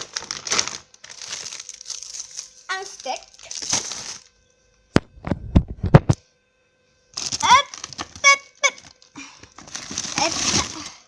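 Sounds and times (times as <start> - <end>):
clicks and knocks of packages: 0.0 - 4.3, 7.2 - 11.0
packaging rustling: 0.0 - 4.3, 7.2 - 11.0.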